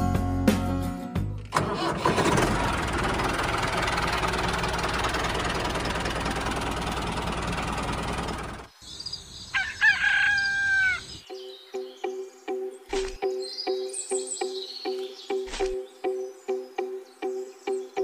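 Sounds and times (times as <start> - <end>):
tractor engine rumbling: 1.4 - 8.7.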